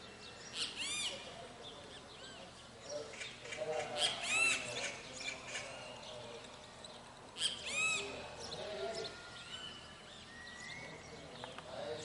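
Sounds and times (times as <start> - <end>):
birds singing: 0.0 - 12.0.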